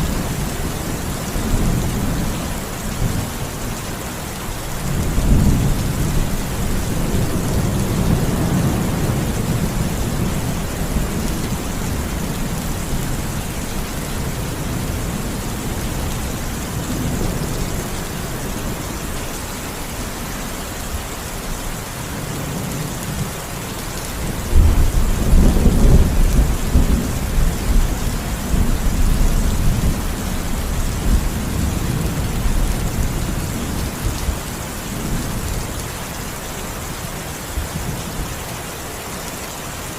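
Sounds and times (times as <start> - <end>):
steady rain: 0.0 - 39.9
thunder rumbling: 4.6 - 19.1, 24.2 - 35.7.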